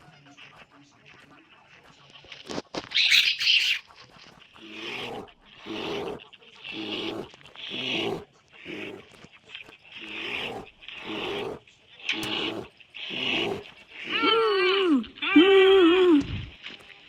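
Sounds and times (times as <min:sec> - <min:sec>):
animal calling: 0:02.8 - 0:17.0
shrill animal call: 0:02.9 - 0:03.8.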